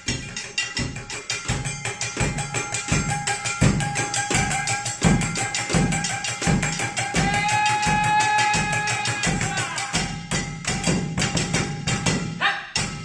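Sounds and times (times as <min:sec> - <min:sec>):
steady ringing tone: 0:00.0 - 0:08.5.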